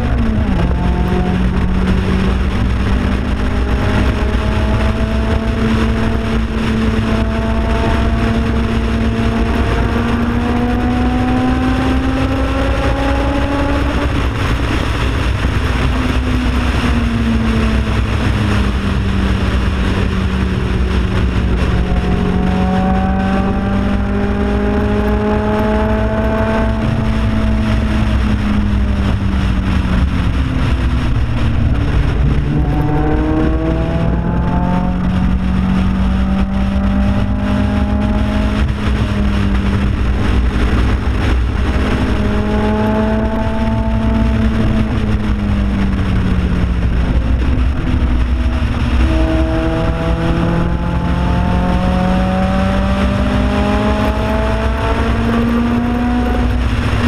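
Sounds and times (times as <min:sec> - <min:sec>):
car engine under load: 0:00.0 - 0:57.0
wind rush: 0:00.0 - 0:57.0.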